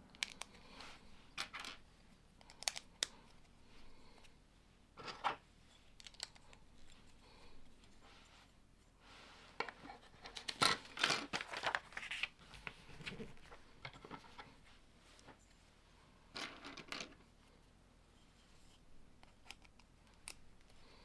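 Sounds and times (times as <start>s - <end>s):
plastic bricks clicking together: 2.4s - 3.1s.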